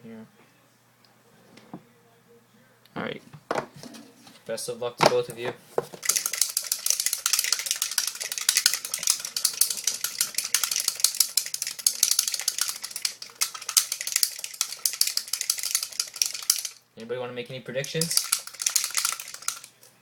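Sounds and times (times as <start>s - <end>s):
paper slips rattling in metal tin: 6.0s - 16.8s, 17.8s - 19.8s.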